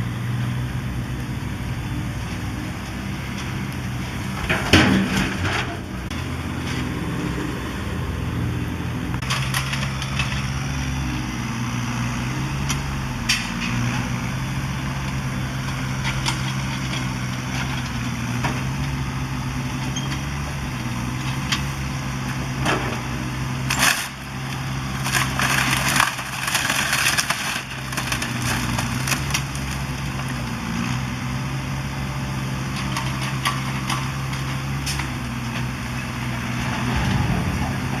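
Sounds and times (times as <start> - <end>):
excavator diesel engine running: 0.0 - 38.0
debris crashing and crunching: 4.1 - 6.2, 22.4 - 30.6, 32.7 - 38.0.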